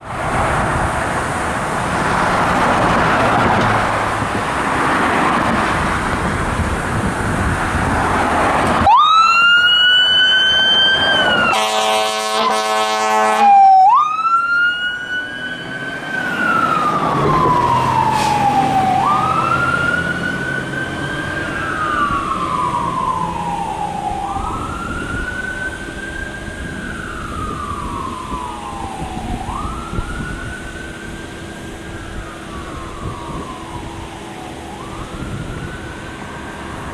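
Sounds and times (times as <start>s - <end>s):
steady rushing noise: 0.0s - 8.9s
siren wailing: 8.4s - 36.9s
horn blast: 11.5s - 13.7s.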